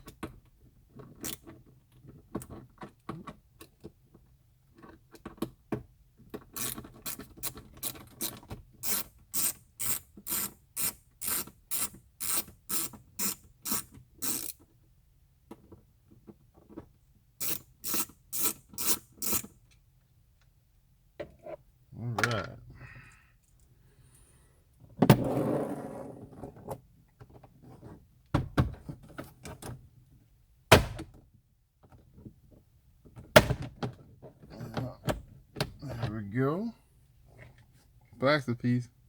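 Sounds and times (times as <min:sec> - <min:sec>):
ratchet tool clicking: 0:06.6 - 0:14.6, 0:17.4 - 0:19.5.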